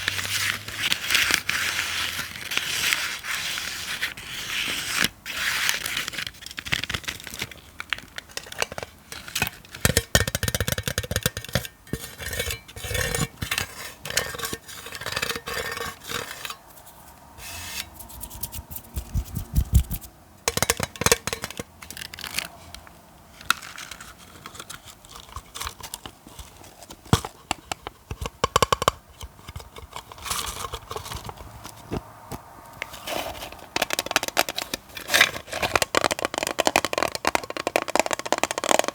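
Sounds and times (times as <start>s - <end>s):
scratchy scraping: 11.9s - 22.6s
quick taps and clicks: 18.0s - 21.6s.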